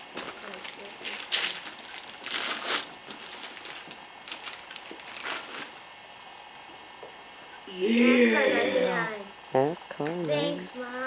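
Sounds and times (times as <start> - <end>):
wrapping paper crinkling and tearing: 0.0 - 5.8.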